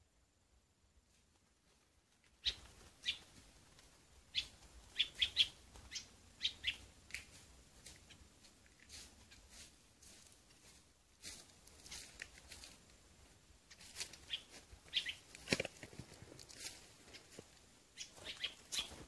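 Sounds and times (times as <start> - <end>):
bird chirps: 2.4 - 3.3, 4.3 - 7.3, 13.7 - 15.3, 17.9 - 19.0.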